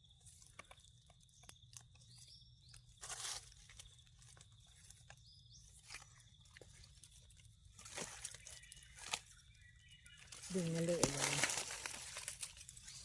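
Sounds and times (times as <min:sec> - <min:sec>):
crunching dry leaf litter: 0:00.0 - 0:13.0.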